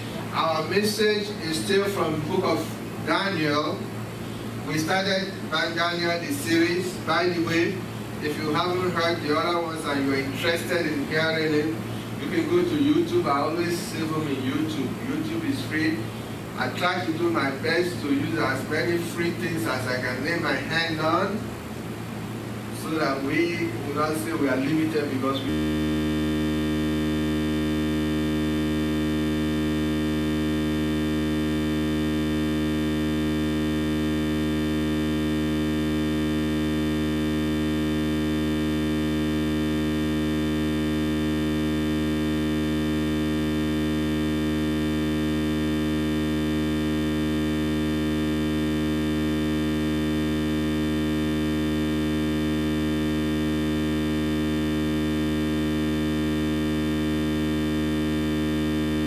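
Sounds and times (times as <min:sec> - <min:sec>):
electrical hum-buzz: 0:00.0 - 0:59.0
person speaking: 0:04.7 - 0:21.6, 0:22.7 - 0:25.6.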